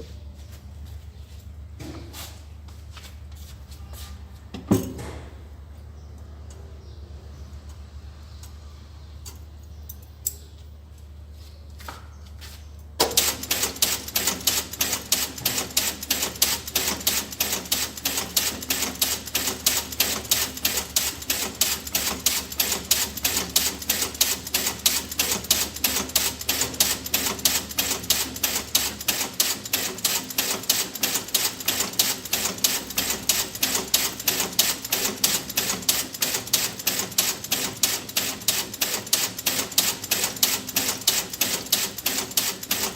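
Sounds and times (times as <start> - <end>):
clicking toy rapid clicks: 13.1 - 42.9.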